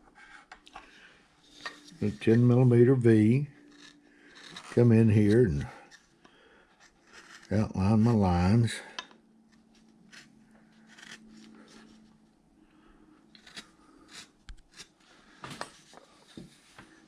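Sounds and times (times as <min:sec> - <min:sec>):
carving tool scraping wood: 0:01.5 - 0:08.2, 0:09.5 - 0:12.0, 0:13.3 - 0:15.0.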